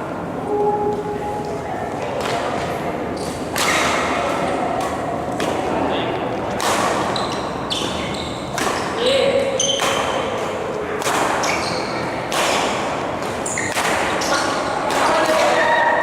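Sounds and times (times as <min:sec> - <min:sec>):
rackets hitting shuttlecock: 0:06.6 - 0:09.0, 0:09.7 - 0:15.7
shoe squeaks on court floor: 0:07.1 - 0:08.5, 0:11.4 - 0:12.0, 0:13.4 - 0:14.5.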